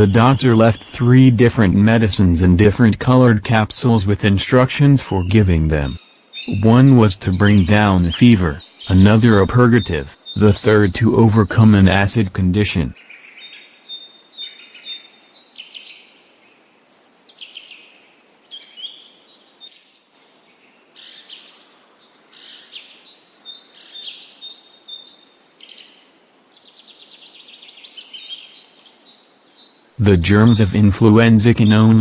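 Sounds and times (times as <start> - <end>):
songbirds chirping and singing: 0.0 - 32.0
bird trill: 5.0 - 16.3, 21.0 - 32.0.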